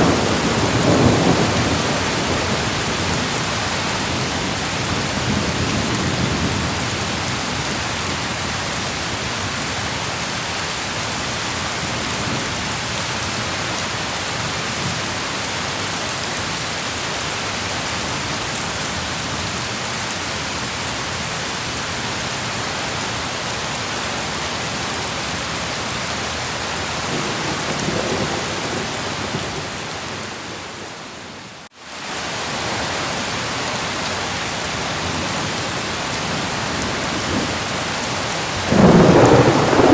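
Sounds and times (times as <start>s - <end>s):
heavy rain: 0.0s - 39.9s
low thunder rumbles: 27.0s - 30.9s, 38.6s - 39.9s.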